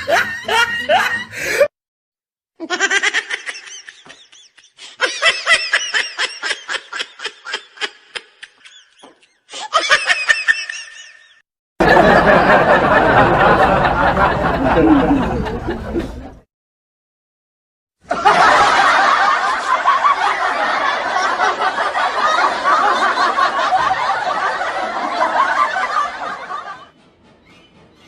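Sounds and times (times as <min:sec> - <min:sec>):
person laughing: 0:00.0 - 0:01.7, 0:02.6 - 0:11.3, 0:14.5 - 0:16.3.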